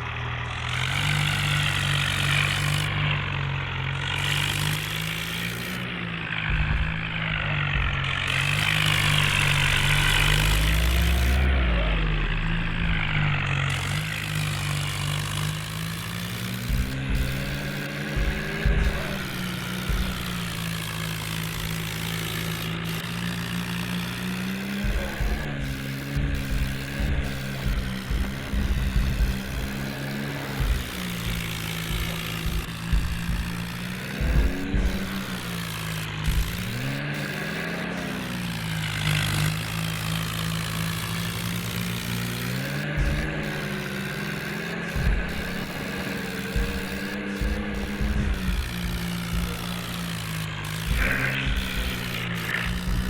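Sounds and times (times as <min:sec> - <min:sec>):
low bumps and rumbles: 0:00.0 - 0:22.8, 0:24.9 - 0:30.0, 0:30.6 - 0:37.0, 0:46.6 - 0:50.0
tractor engine running: 0:00.0 - 0:53.0
low thumps: 0:04.2 - 0:16.0, 0:16.6 - 0:22.2, 0:30.6 - 0:37.0.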